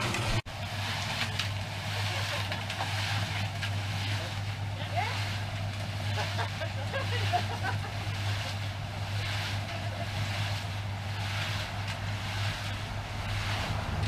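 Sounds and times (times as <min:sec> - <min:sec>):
concrete mixer motor hum: 0:00.0 - 0:14.0
mix churning in drum: 0:00.0 - 0:14.0.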